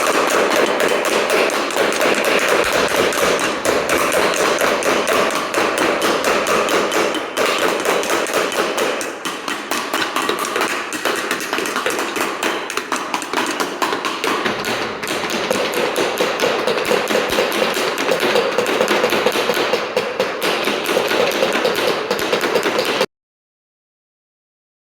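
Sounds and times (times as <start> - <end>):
rapid steady knocking: 0.0 - 23.1.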